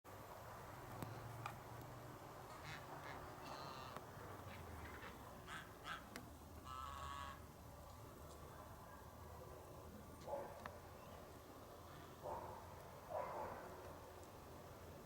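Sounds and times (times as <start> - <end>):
birds calling: 2.5 - 7.4.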